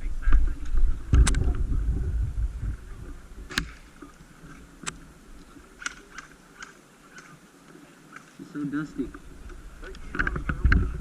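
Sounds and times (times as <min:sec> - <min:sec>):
wind on microphone: 0:00.0 - 0:05.5, 0:09.0 - 0:11.0
airsoft guns popping: 0:03.5 - 0:03.9.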